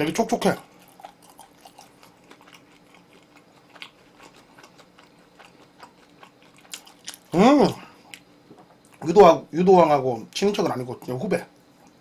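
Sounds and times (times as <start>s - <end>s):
chewing chicken: 0.5s - 7.4s.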